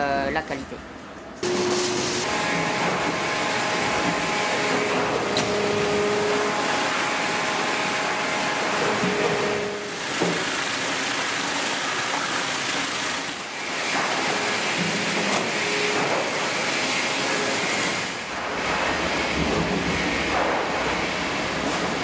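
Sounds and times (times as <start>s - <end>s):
sawmill machinery din: 1.4s - 12.0s
log conveyors running: 1.4s - 22.0s.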